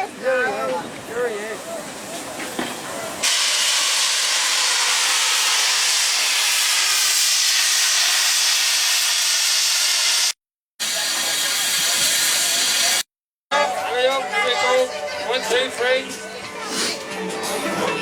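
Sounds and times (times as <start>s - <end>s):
steam locomotive venting steam: 1.8s - 13.1s.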